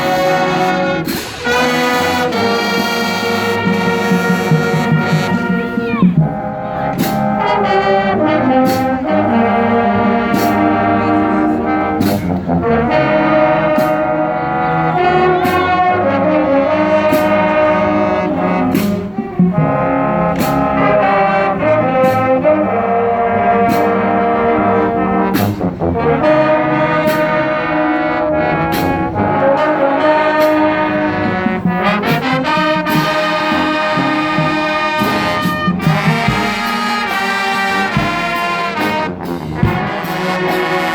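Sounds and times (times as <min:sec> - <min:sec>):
marching percussion beat: 0:00.0 - 0:10.8, 0:30.4 - 0:40.9
brass holding chords: 0:00.0 - 0:40.9.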